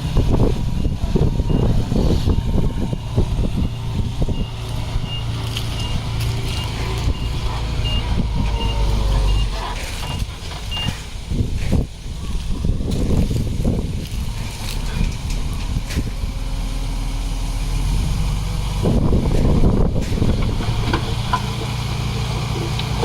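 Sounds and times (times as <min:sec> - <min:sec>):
diesel engine rumble: 0:00.0 - 0:23.0
reversing alarm beeping: 0:00.7 - 0:11.0
knocks and clanks: 0:18.9 - 0:23.0.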